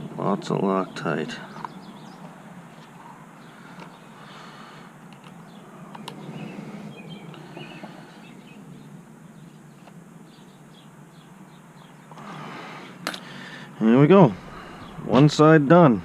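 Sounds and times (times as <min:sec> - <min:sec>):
low background noise: 0:00.0 - 0:16.0
faint bird chirps: 0:05.4 - 0:12.2.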